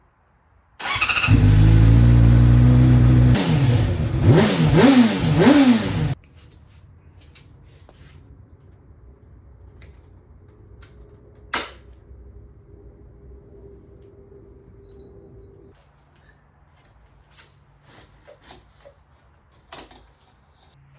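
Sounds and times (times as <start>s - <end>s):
motorcycle engine idling and revving: 0.8s - 6.2s.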